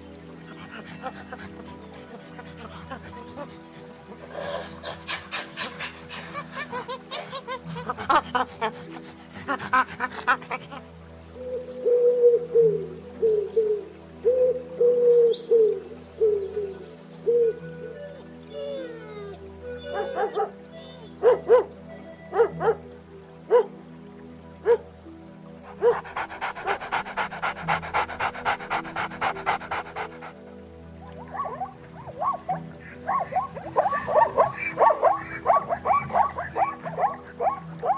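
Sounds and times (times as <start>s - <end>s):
soft background music: 0.0s - 37.9s
animal panting rapidly: 0.5s - 10.8s, 25.6s - 30.6s
animal yelp: 18.5s - 21.7s, 33.1s - 37.9s.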